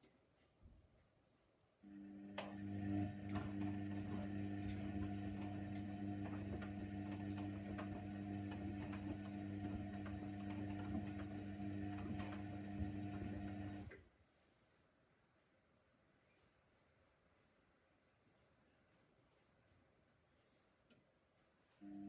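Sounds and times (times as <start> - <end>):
washing machine motor humming: 1.9 - 14.0.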